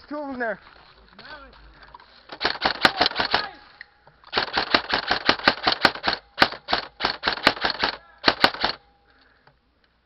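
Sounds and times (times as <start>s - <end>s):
airsoft gun rapid firing: 2.3s - 3.5s, 4.3s - 8.8s.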